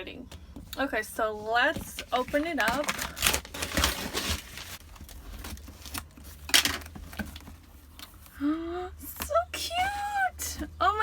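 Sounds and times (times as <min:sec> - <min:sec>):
wrapping paper ripping and crinkling: 0:02.0 - 0:07.6.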